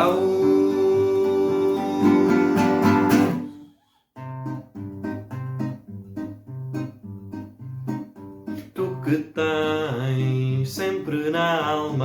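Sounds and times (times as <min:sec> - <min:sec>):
acoustic guitar strummed chord: 0:00.0 - 0:05.7
fingerpicked acoustic guitar: 0:00.0 - 0:12.0.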